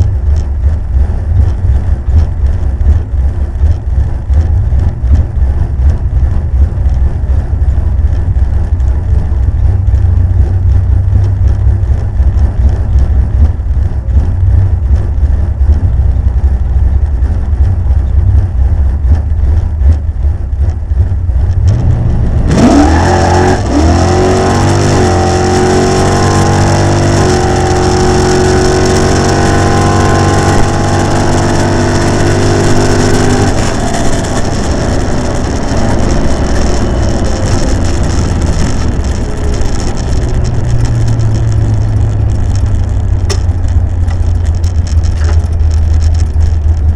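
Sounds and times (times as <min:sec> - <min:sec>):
car engine lumpy idle: 0:00.0 - 0:22.8, 0:27.8 - 0:46.9
car engine revving high: 0:18.4 - 0:46.4.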